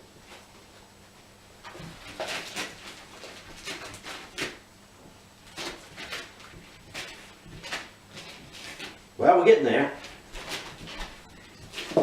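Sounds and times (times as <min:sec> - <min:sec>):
dog ripping wrapping paper: 0:01.6 - 0:04.6, 0:05.4 - 0:09.1, 0:09.9 - 0:12.0.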